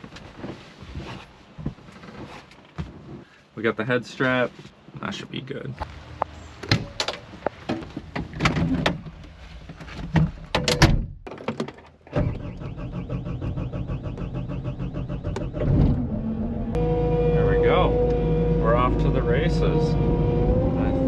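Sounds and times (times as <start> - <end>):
door and latches clunking: 10.5 - 12.3
engine running steadily: 12.4 - 21.0.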